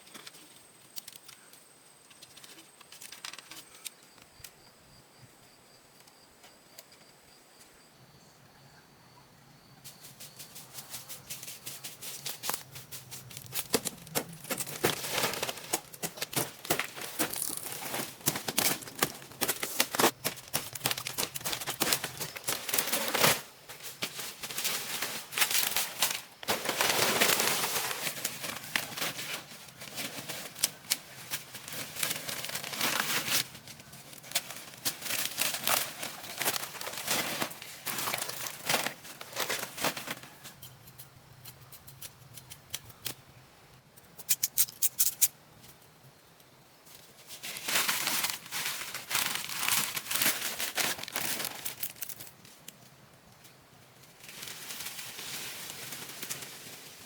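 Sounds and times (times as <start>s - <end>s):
rustling: 9.9s - 40.6s, 46.9s - 52.7s, 54.0s - 57.0s.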